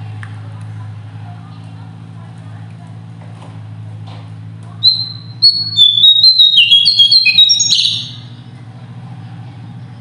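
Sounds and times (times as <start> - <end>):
songbird singing: 4.8 - 8.4.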